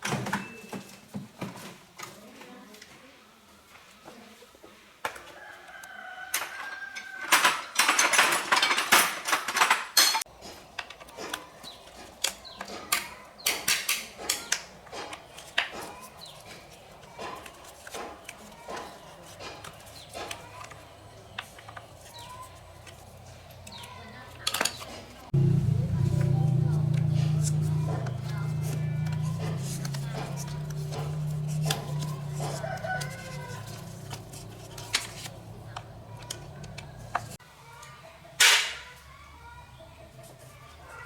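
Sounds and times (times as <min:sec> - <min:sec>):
rooster crowing: 0:05.2 - 0:07.6, 0:27.4 - 0:37.4.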